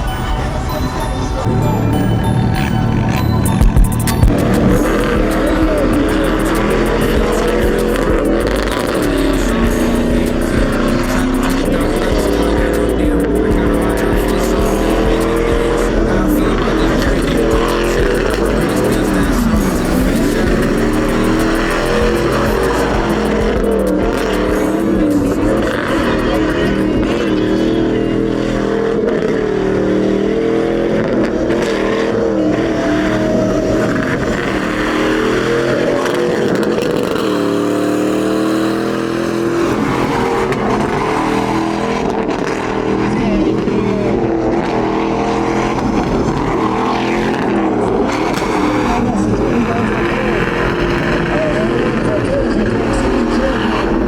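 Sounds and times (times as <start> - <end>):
truck engines revving: 0.0 - 54.0.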